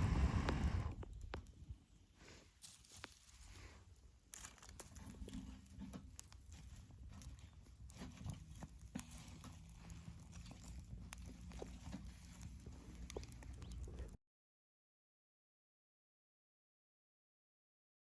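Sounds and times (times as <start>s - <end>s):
low rumble: 0.0s - 1.4s
bonfire crackling: 0.0s - 1.5s.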